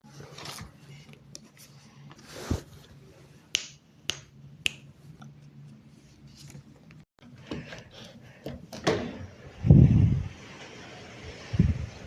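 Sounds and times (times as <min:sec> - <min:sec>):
sharp snaps: 0:03.5 - 0:04.9.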